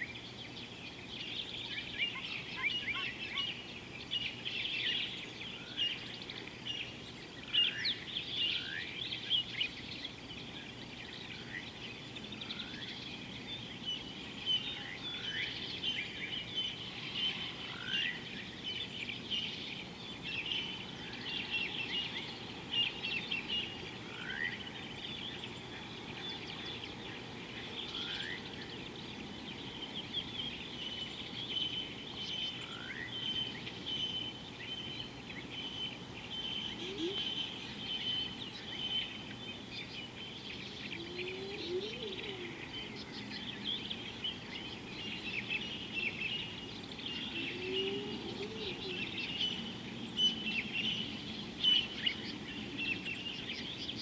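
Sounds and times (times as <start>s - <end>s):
birds chirping and calling: 0.0s - 54.0s
low background noise: 0.0s - 54.0s.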